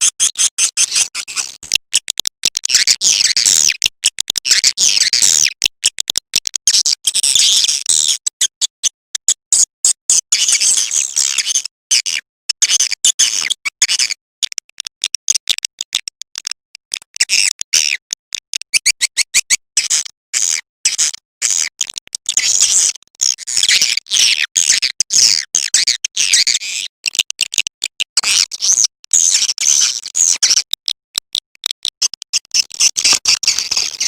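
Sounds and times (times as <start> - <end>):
high-pitched bird chirps: 17.2 - 19.6.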